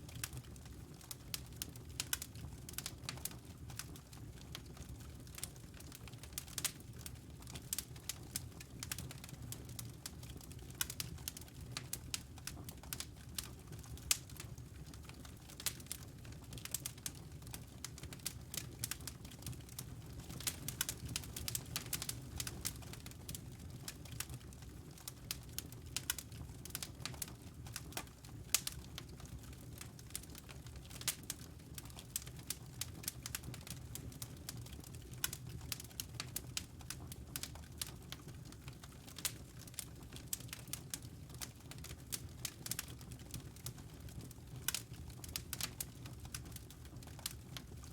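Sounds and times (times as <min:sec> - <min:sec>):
fire crackling: 0:00.1 - 0:47.9
fire pops and snaps: 0:07.5 - 0:47.6.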